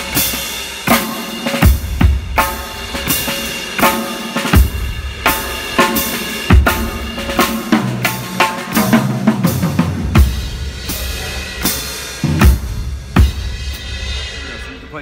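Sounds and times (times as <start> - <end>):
snare drum: 0.0 - 10.4
bass drum: 0.9 - 14.7.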